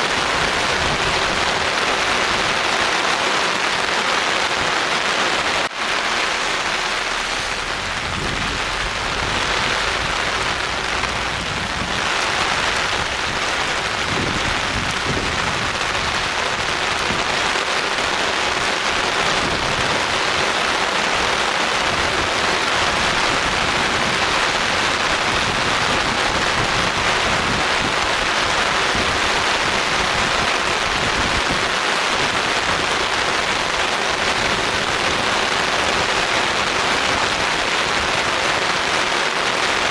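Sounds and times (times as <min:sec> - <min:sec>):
soft rain falling: 0:00.0 - 0:39.9.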